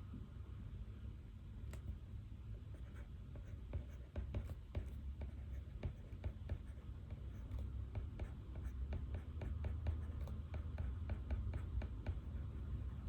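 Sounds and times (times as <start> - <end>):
low room hum: 0.0 - 13.0
pen scratching on paper: 2.6 - 13.0.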